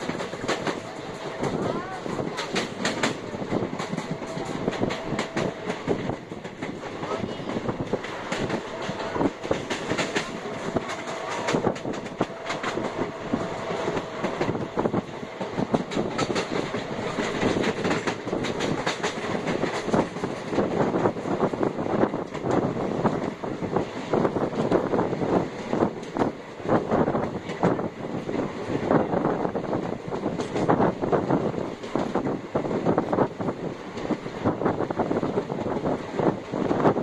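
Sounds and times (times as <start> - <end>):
wheels clacking over rail joints: 0.0 - 21.2
train wheels rumbling on rails: 0.0 - 37.0.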